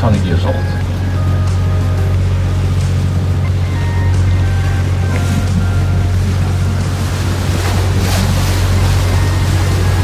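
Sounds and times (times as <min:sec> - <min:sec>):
boat diesel engine humming: 0:00.0 - 0:10.0.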